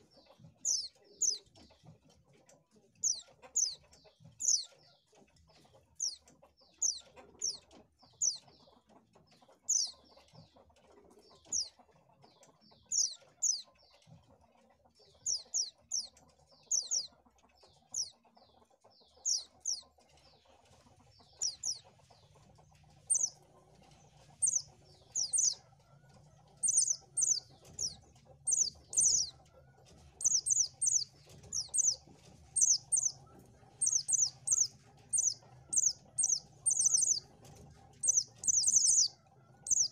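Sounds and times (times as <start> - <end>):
bird giving short high chirps: 23.1 - 23.3, 24.4 - 25.6, 26.6 - 29.3, 30.2 - 32.0, 32.6 - 33.2, 33.8 - 37.3, 38.0 - 39.1, 39.7 - 39.9.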